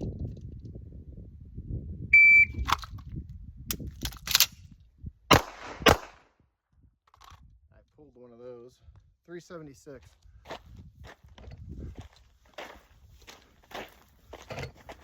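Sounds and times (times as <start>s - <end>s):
shot timer beep: 2.2s - 2.7s
gun handling clicks: 2.6s - 3.1s, 3.7s - 4.6s, 7.1s - 7.4s
pistol shots: 5.3s - 6.2s.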